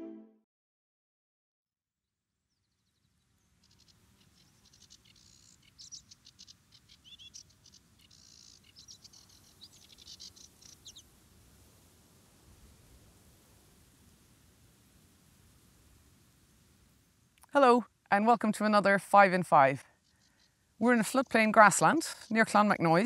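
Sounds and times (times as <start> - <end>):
songbird chirping and trilling: 2.5 - 11.1, 18.5 - 23.0
faint background noise: 2.8 - 23.0.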